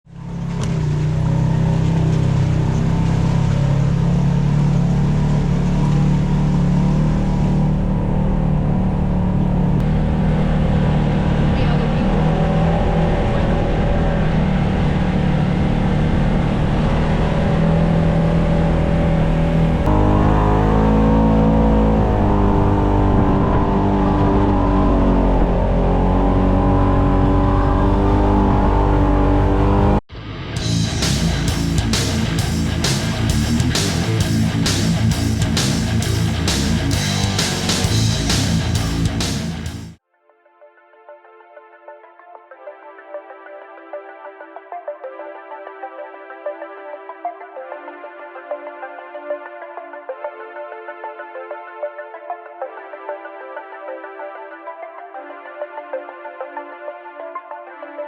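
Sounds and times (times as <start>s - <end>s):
vehicle engine running: 0.1s - 40.0s.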